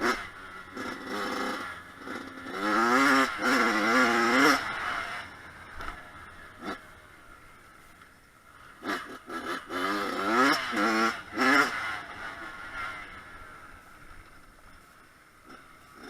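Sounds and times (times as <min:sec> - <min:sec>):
two-stroke engine revving: 0:00.0 - 0:07.0, 0:08.7 - 0:13.9.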